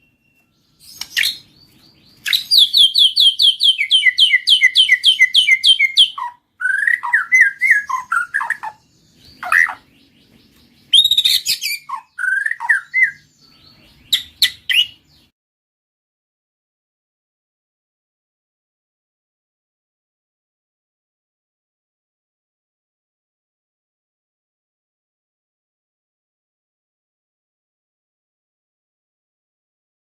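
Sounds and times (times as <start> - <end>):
bird singing whistled phrases: 0.0 - 9.9, 10.8 - 15.3.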